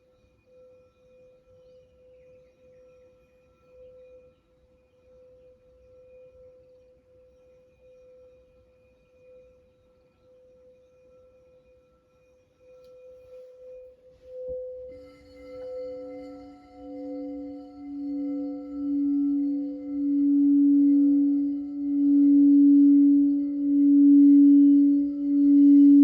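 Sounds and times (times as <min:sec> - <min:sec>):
crystal singing bowl ringing: 0:10.2 - 0:26.0.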